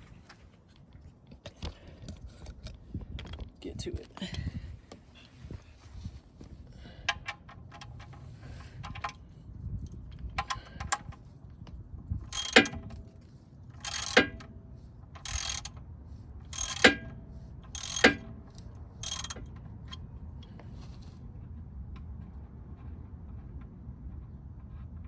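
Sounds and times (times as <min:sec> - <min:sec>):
ratchet wrench clicking: 0:12.3 - 0:13.1, 0:13.8 - 0:14.5, 0:15.2 - 0:15.8, 0:16.5 - 0:20.0.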